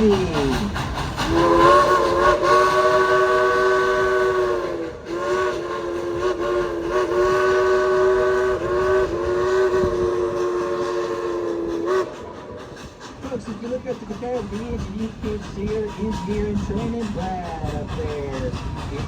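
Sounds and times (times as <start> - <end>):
steam locomotive whistle: 1.2 - 12.8.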